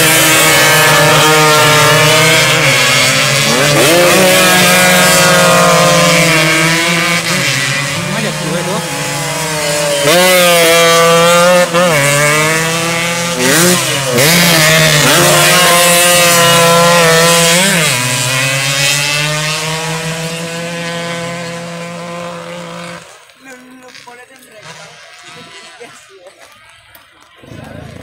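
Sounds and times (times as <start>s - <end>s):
racing motorcycle engines revving: 0.0s - 28.0s.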